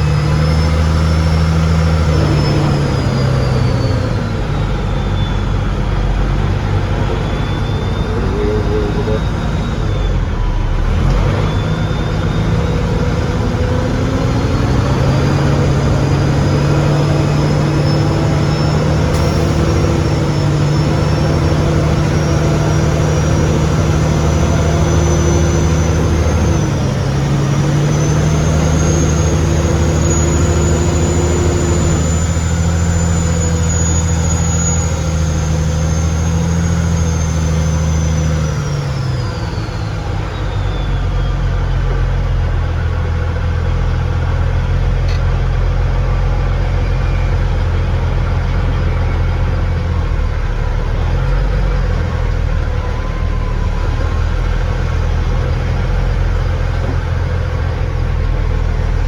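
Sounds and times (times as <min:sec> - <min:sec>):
high whine: 0:00.0 - 0:42.2
heavy engine running hard: 0:00.0 - 0:59.0.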